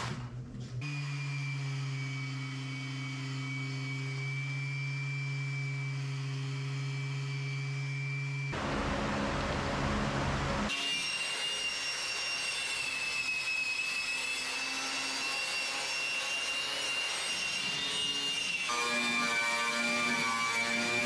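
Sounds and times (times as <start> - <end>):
orbital sander on sheet metal: 0.8 - 21.0.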